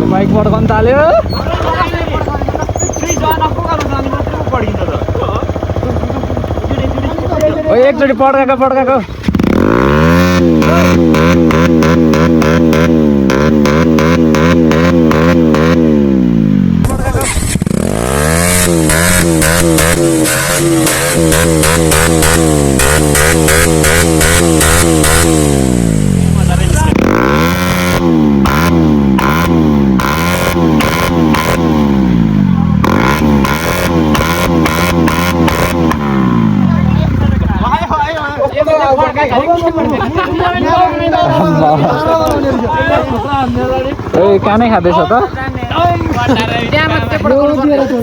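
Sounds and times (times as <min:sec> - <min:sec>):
exhaust pops: 0:00.0 - 0:07.6, 0:09.1 - 0:36.7
motorcycle engine at rev limiter: 0:00.0 - 0:48.0.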